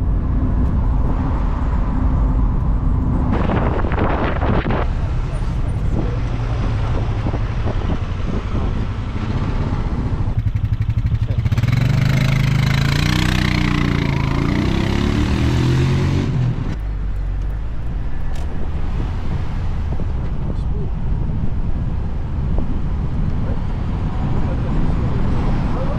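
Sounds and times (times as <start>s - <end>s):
vehicle engine revving: 3.3s - 17.2s.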